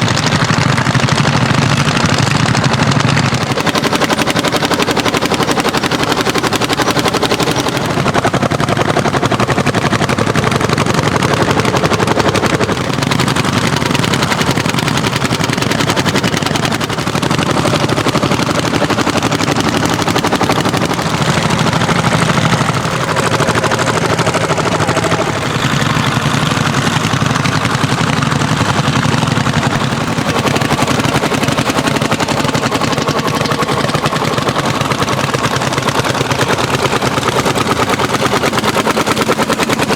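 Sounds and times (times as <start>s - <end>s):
tractor engine exhaust beat: 0.0s - 39.9s.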